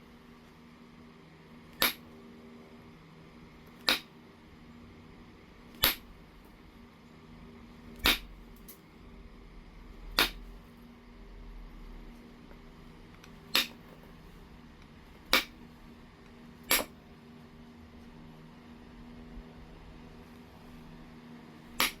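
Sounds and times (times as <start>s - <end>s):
knapping tool striking stone: 1.8s - 2.0s, 3.8s - 4.1s, 5.8s - 6.1s, 8.0s - 8.3s, 10.2s - 10.4s, 13.5s - 13.8s, 15.3s - 15.6s, 16.7s - 16.9s, 21.8s - 22.0s.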